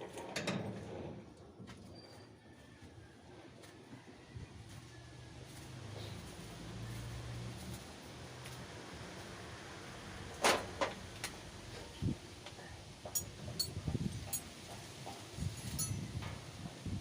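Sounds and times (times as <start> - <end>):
metallic clinks and rings: 13.1 - 14.4, 15.5 - 16.1.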